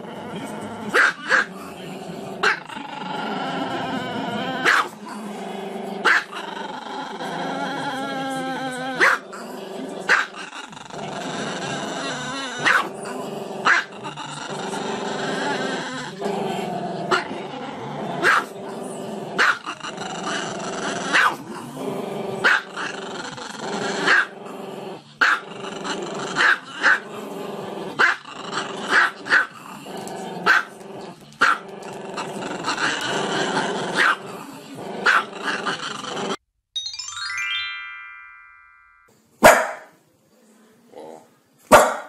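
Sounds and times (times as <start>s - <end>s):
dog barking: 1.0s - 1.5s, 4.6s - 4.9s, 6.0s - 6.4s, 9.0s - 9.2s, 10.1s - 10.3s, 12.6s - 12.9s, 13.7s - 13.9s, 18.2s - 18.5s, 19.4s - 19.6s, 21.1s - 21.4s, 22.4s - 22.7s, 24.1s - 24.3s, 25.2s - 25.4s, 26.4s - 27.0s, 28.9s - 29.5s, 30.5s - 30.7s, 34.0s - 34.2s, 35.0s - 35.3s, 39.4s - 39.9s, 41.7s - 42.0s.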